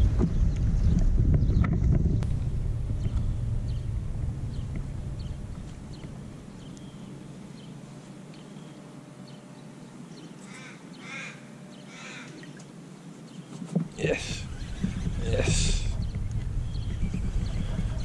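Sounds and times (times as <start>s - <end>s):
low rumble: 0.0s - 7.8s, 14.0s - 18.0s
birds chirping: 0.0s - 18.0s
harsh bird calls: 14.0s - 18.0s.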